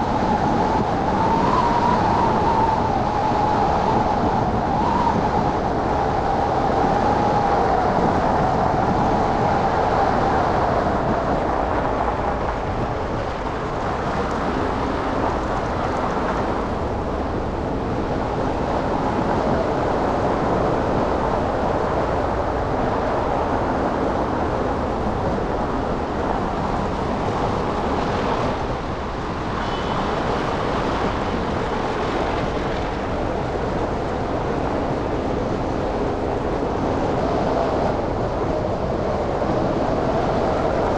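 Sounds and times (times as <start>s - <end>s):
city street traffic: 9.8s - 36.5s.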